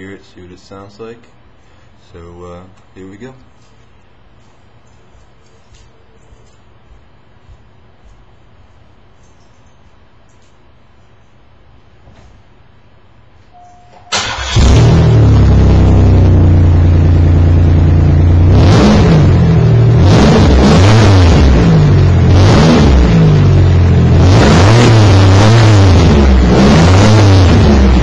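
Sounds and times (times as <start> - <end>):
car engine starting and revving: 14.1 - 28.0.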